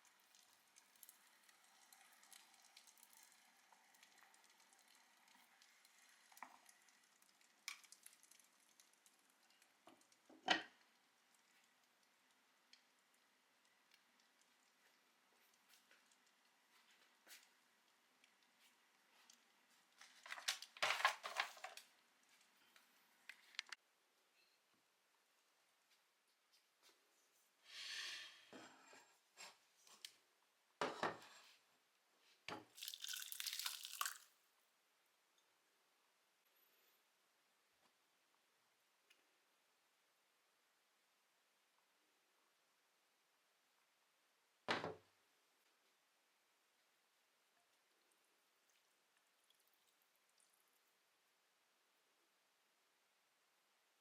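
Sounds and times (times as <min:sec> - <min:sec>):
faint clicks and taps: 0:00.3 - 0:23.8.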